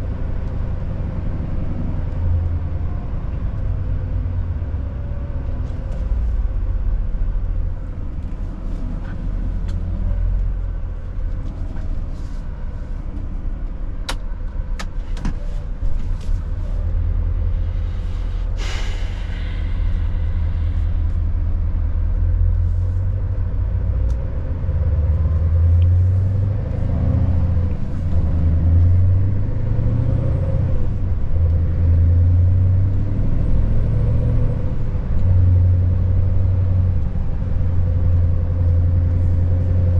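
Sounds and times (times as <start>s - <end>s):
truck diesel engine running: 9.2s - 23.9s
air hiss: 17.6s - 21.2s.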